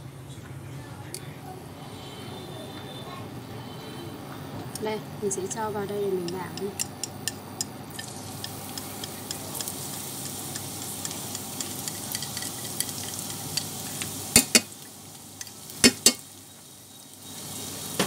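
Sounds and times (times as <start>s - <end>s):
garlic sizzling in hot oil: 5.5s - 18.0s.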